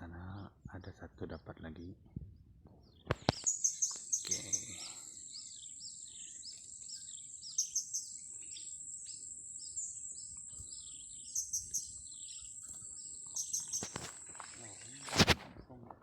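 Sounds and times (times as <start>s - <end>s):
small birds chirping: 0.8s - 16.0s
high insect buzz: 3.2s - 15.4s.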